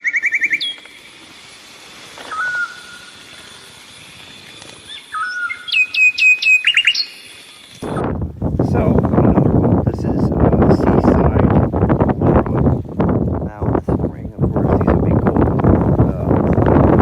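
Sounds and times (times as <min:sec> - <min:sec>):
wild birds singing: 0:00.0 - 0:01.4, 0:02.2 - 0:08.0.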